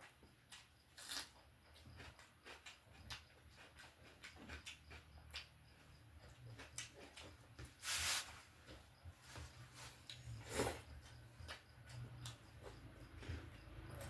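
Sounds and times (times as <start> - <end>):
wet chewing and lip smacks: 1.8 - 7.4
loud breathy hiss: 7.8 - 8.3.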